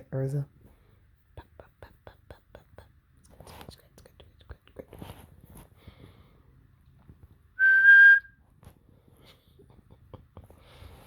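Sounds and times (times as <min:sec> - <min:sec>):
person whistling short note: 0:07.6 - 0:08.3.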